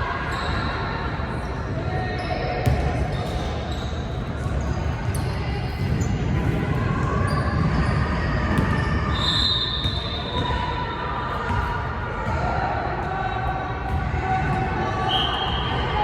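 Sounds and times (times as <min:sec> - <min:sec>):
sneakers squeaking: 0:00.2 - 0:06.3, 0:07.1 - 0:16.0
basketball bouncing on court: 0:02.6 - 0:03.5, 0:11.4 - 0:13.1, 0:13.8 - 0:14.8.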